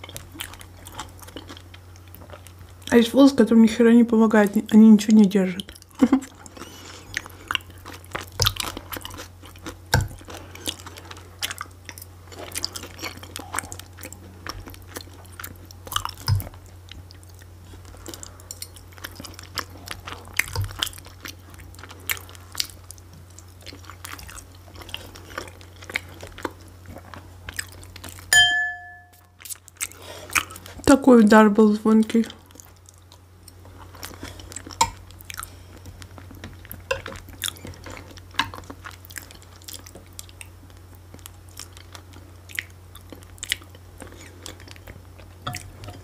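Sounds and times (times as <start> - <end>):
person chewing: 0.0 - 2.9, 5.6 - 30.8, 32.4 - 46.0
fork clinking on dishware: 28.4 - 29.2.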